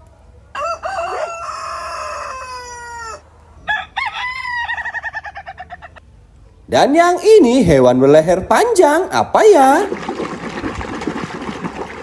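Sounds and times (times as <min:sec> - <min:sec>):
rooster crowing: 0:00.5 - 0:05.9.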